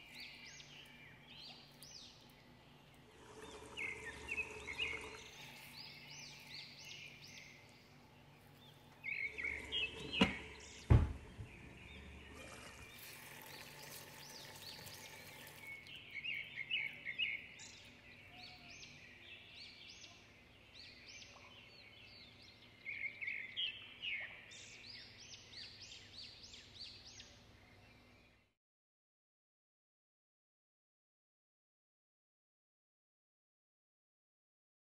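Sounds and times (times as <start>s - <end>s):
small birds chirping: 0.0s - 28.6s
sharp knocks: 10.1s - 11.8s.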